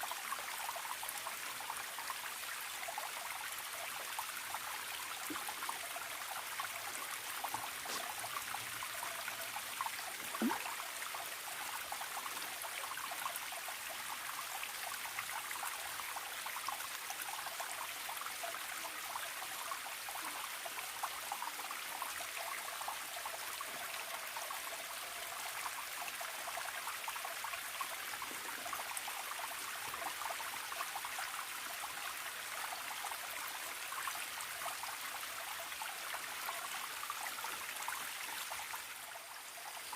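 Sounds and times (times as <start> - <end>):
stream trickling: 0.0 - 39.9
water plop: 10.2 - 10.8.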